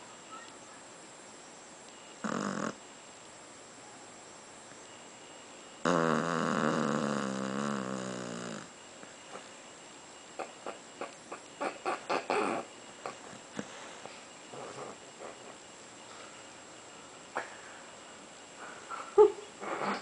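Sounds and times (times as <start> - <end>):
bird snoring: 2.2 - 2.8, 5.8 - 8.8, 10.4 - 13.2, 14.5 - 15.6.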